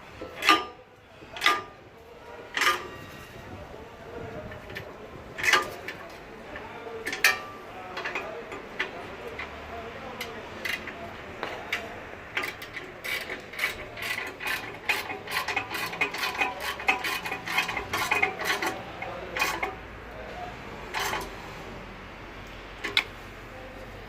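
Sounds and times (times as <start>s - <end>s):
ratchet wrench clicking: 12.4s - 18.8s.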